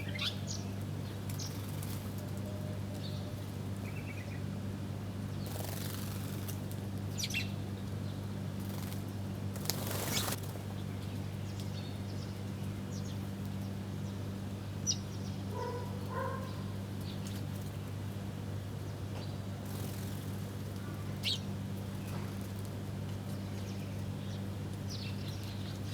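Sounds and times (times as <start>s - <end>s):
small birds chirping: 0.0s - 2.2s, 2.9s - 4.5s, 7.1s - 14.2s, 19.2s - 22.6s, 23.3s - 25.9s
wings flapping: 1.5s - 2.3s, 5.4s - 6.8s, 8.6s - 10.7s, 19.6s - 20.8s.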